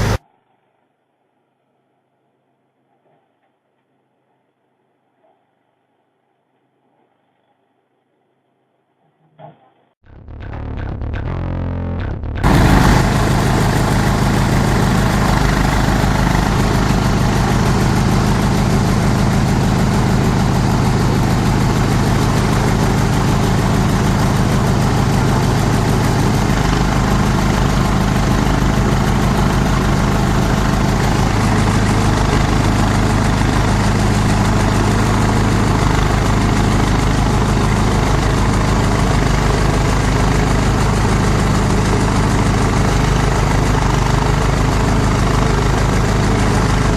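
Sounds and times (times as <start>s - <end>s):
chopper grinder machine running: 0.0s - 0.2s, 12.4s - 46.9s.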